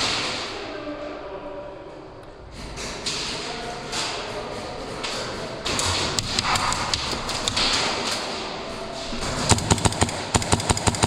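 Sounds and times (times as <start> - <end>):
airsoft shots clicking: 9.5 - 11.0.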